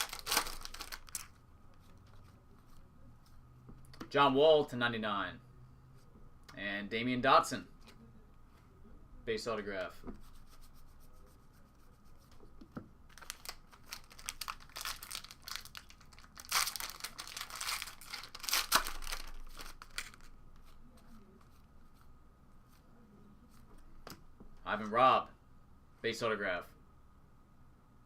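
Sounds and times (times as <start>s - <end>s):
card pack wrapper tearing and crinkling: 0.0s - 1.4s, 13.1s - 20.3s.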